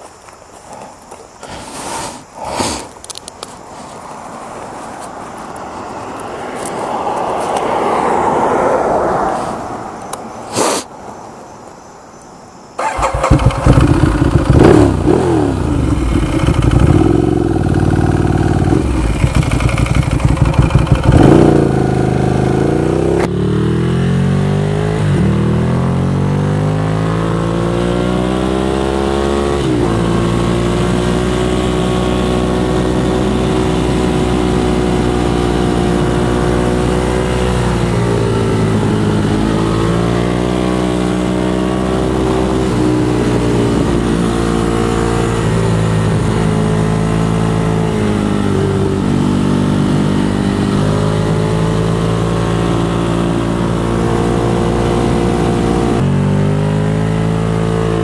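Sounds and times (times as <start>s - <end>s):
motorcycle engine accelerating: 12.8s - 58.0s.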